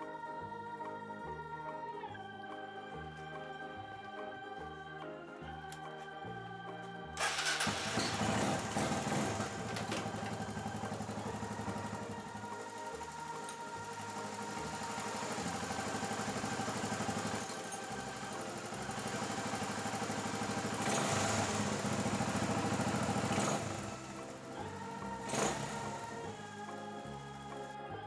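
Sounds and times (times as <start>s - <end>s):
background music: 0.0s - 28.0s
motorcycle engine idling: 7.2s - 27.6s.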